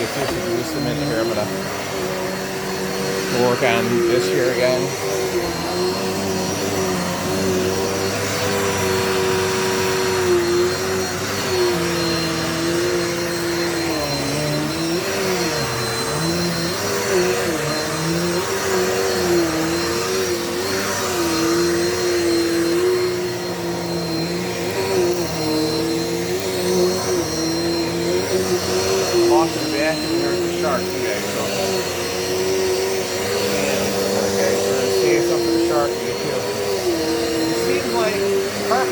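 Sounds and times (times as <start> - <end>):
vacuum cleaner on carpet: 0.0 - 38.9.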